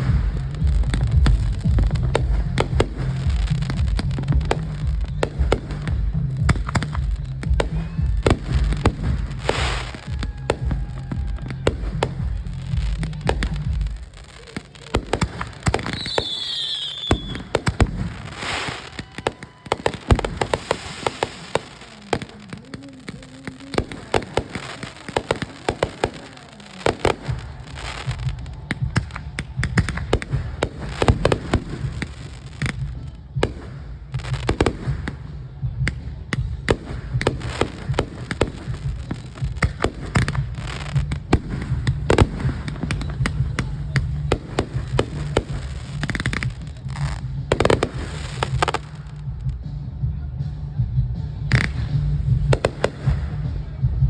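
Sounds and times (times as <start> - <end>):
fireworks bangs and crackles: 0.0 - 54.0
firework whistle falling in pitch: 15.9 - 17.5.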